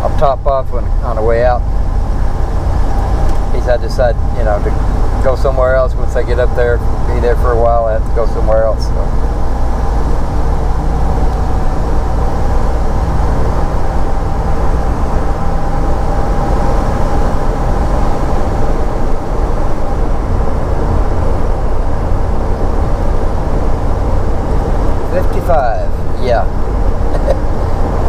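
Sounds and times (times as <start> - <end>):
engine and road rumble: 0.0 - 28.0.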